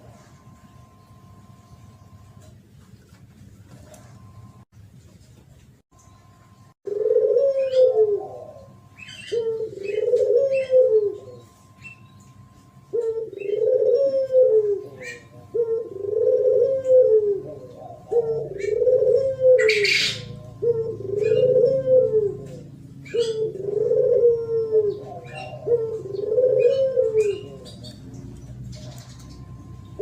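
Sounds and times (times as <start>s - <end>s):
dove cooing: 6.8s - 30.0s
small birds chirping: 24.8s - 30.0s.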